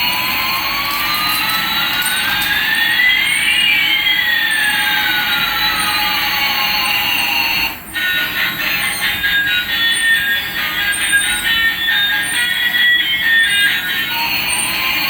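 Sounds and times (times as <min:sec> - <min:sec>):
toy jet engine sound effect: 0:00.4 - 0:15.0.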